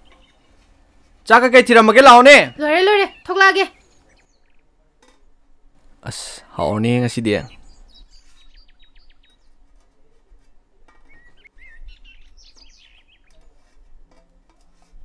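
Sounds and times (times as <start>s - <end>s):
small birds chirping: 0.0s - 13.8s.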